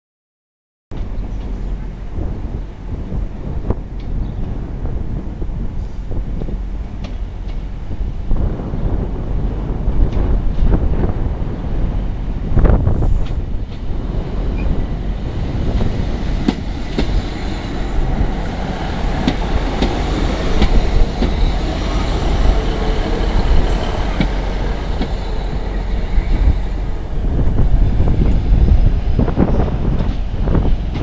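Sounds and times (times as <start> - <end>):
diesel train passing: 1.0 - 31.0.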